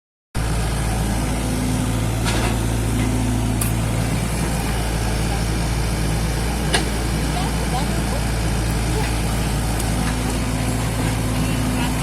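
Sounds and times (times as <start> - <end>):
diesel engine running: 0.4 - 12.0
higher hum: 3.6 - 11.7.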